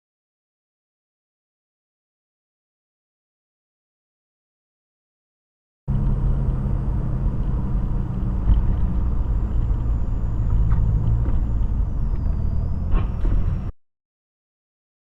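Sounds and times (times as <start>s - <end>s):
car engine rumble: 5.9s - 13.8s
tyres on the road: 5.9s - 13.8s.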